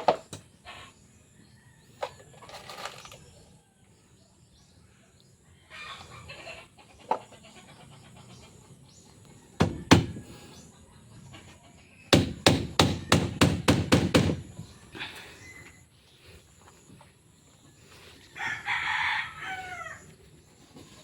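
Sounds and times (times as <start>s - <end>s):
hammer strikes: 9.6s - 10.2s, 12.1s - 14.5s.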